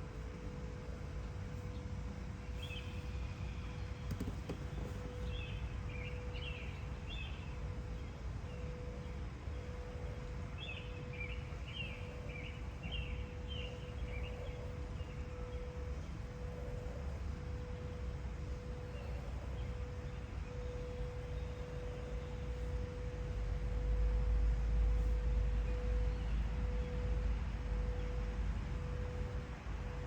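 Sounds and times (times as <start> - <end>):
faint continuous hum: 0.0 - 30.0
low outdoor rumble: 0.0 - 30.0
songbirds chirping: 0.0 - 30.0.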